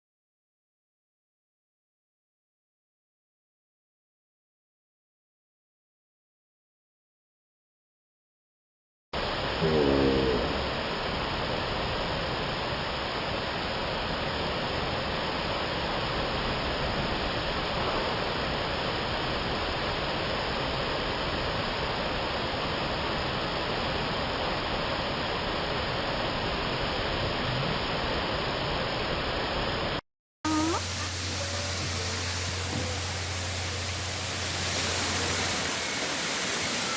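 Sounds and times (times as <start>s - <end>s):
waterfall rushing: 9.2s - 21.8s, 30.5s - 36.9s.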